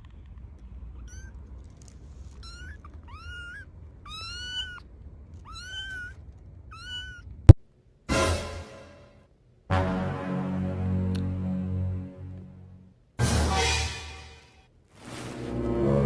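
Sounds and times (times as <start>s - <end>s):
cat meowing: 1.0s - 7.5s.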